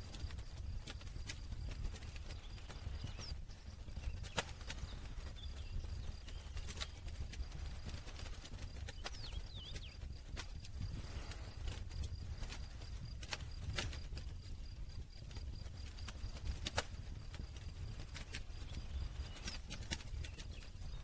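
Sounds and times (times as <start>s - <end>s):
fire rumbling: 0.0s - 21.0s
wood crackling and popping: 0.0s - 21.0s.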